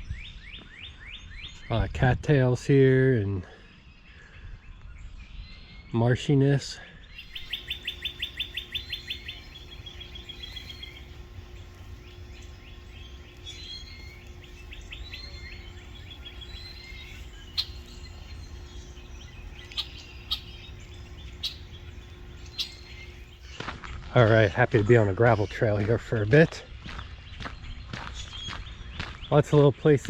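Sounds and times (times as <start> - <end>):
small songbirds singing: 7.1 - 23.6.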